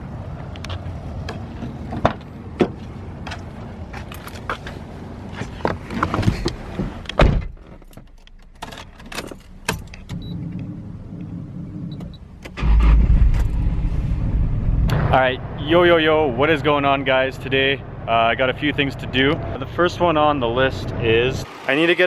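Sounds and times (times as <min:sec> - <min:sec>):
car engine rumble: 0:00.0 - 0:21.6
keys jangling: 0:07.8 - 0:10.1.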